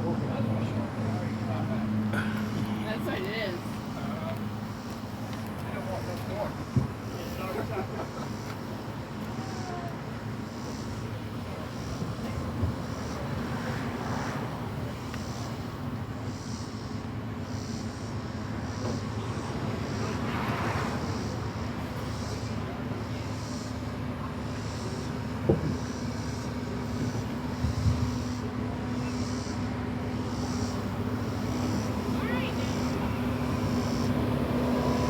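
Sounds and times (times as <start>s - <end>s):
vehicle engine humming: 0.0s - 35.0s.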